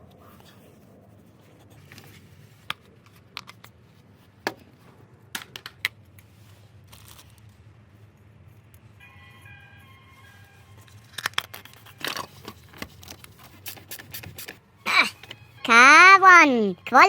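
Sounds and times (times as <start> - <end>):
clicks and taps of objects handled: 2.6 - 3.8.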